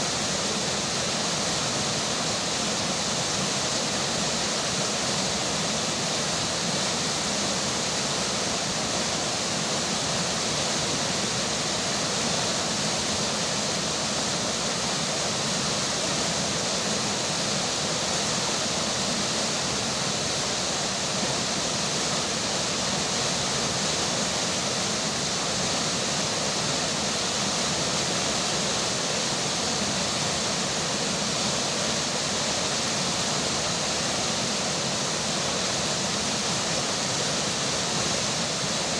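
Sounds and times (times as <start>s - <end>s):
river flowing: 0.0s - 38.9s.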